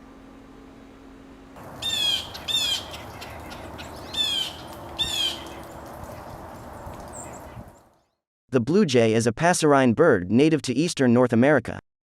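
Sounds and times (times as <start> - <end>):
blue jay harsh calls: 1.6 - 7.9.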